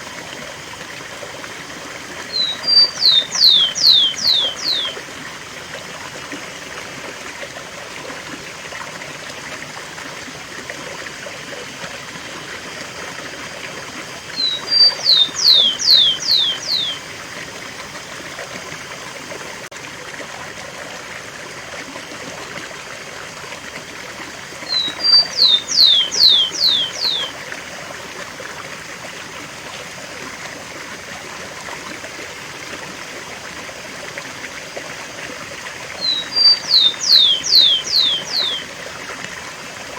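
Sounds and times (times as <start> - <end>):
sparrow singing: 2.3 - 5.0, 14.4 - 17.1, 24.7 - 27.3, 36.0 - 38.7.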